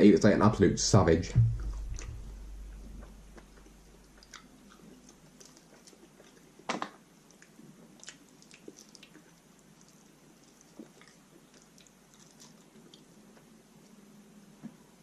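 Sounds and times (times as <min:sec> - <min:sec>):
chewing and biting chicken: 0:02.9 - 0:14.0.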